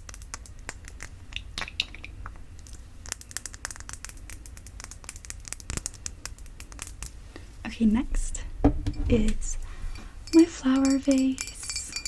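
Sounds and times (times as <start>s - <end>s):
light taps on glass bottle: 8.6s - 9.4s
heavy knock: 8.6s - 9.6s.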